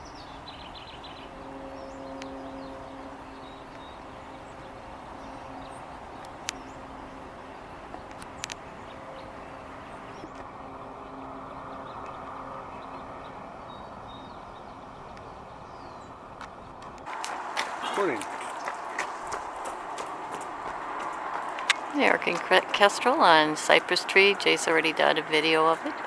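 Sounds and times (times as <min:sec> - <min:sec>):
low traffic hum: 0:00.0 - 0:26.0
sharp clicks: 0:07.9 - 0:08.6.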